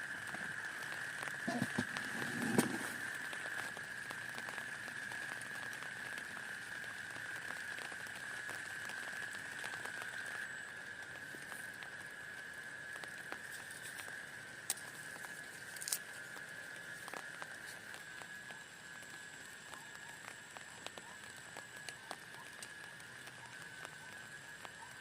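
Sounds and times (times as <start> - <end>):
steady high-pitched tone: 0.0 - 3.8
rain pattering: 0.0 - 25.0.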